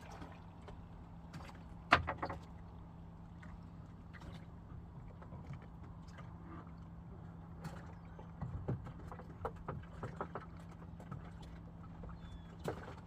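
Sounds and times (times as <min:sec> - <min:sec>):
boat engine running: 0:00.0 - 0:13.0
knocks and clatter on deck: 0:01.9 - 0:02.4.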